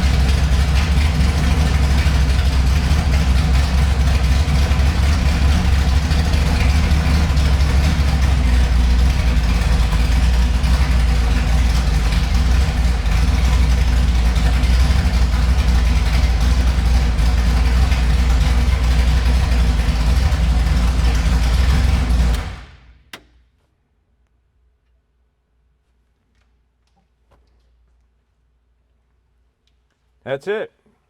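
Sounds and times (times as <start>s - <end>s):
race car engine idling: 0.0s - 22.9s.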